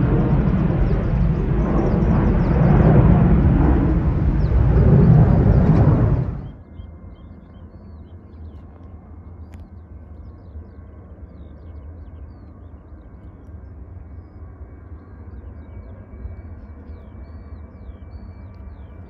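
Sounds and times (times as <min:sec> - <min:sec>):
low steady rumble: 0:00.0 - 0:06.6
jet airliner engine noise: 0:00.0 - 0:19.0.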